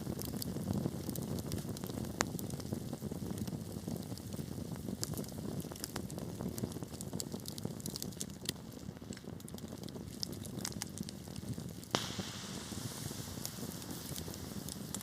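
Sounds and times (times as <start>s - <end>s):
fire crackling: 0.0s - 15.0s
low rumble of flames: 0.0s - 15.0s
loud fire pop: 11.8s - 15.0s.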